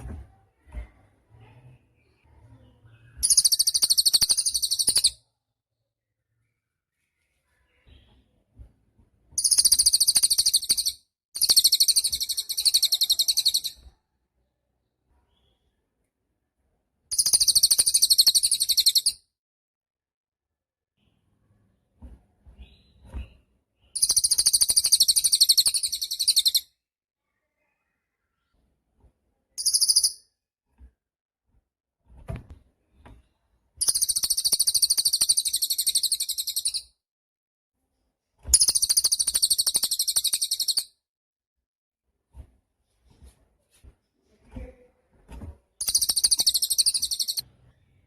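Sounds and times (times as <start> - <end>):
bird singing high trills: 3.2 - 5.1, 24.0 - 26.6, 29.6 - 30.2, 38.5 - 40.9, 45.8 - 47.4
bird trilling: 3.2 - 5.1, 9.4 - 13.8, 17.1 - 19.2, 24.0 - 26.6, 29.6 - 30.2, 33.8 - 36.8, 38.5 - 40.8, 45.8 - 47.4.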